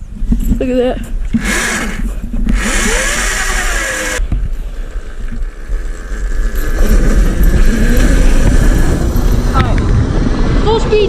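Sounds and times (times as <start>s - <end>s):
electric dirt bike motor whining: 1.4s - 4.2s, 5.0s - 9.5s.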